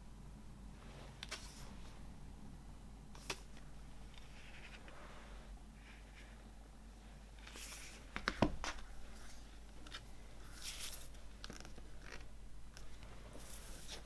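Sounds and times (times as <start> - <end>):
packaging rustling and scraping: 13.0 - 14.0.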